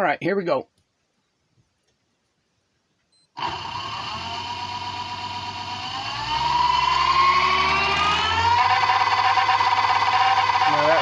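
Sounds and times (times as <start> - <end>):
electric motor whine: 3.4 - 11.0
motor rattling: 3.4 - 11.0.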